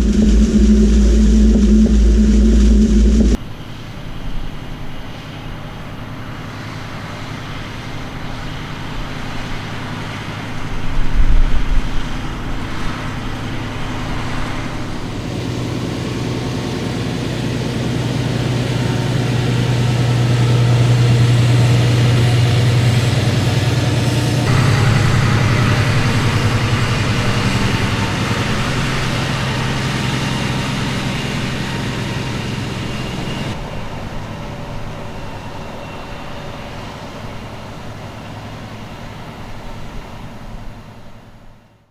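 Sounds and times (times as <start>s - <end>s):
low thump: 0.0s - 3.4s
tractor engine under load: 12.6s - 35.1s.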